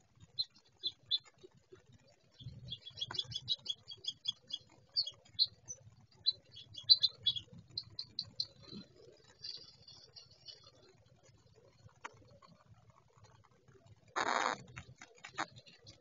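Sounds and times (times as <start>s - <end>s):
birds chip calls: 0.2s - 1.3s, 2.1s - 11.1s, 14.2s - 16.0s.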